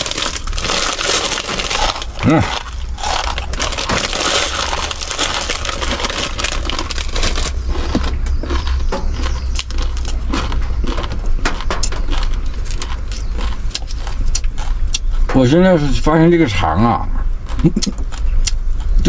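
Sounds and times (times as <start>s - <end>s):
plastic packet crinkling: 0.0s - 8.6s
dry noodles crunching: 0.0s - 15.1s.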